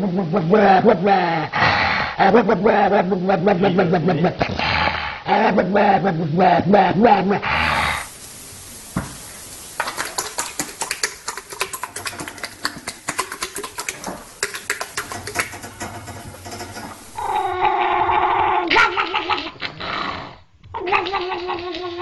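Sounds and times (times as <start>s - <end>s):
animal wailing: 13.6s - 22.0s.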